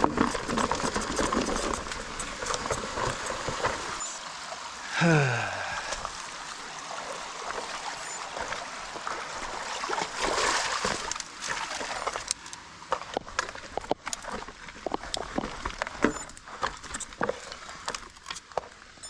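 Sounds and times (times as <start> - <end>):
bike clicks and rattles: 0.0 - 4.0.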